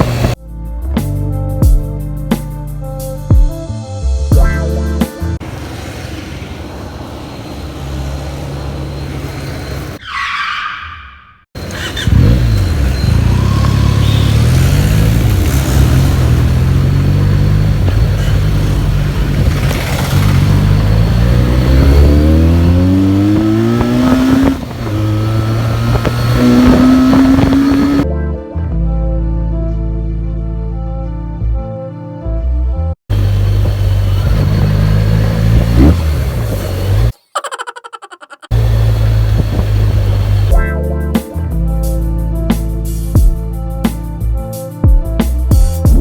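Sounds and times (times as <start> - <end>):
motorcycle engine accelerating: 0.0 - 0.4, 11.6 - 28.0, 33.1 - 37.1, 38.5 - 40.7.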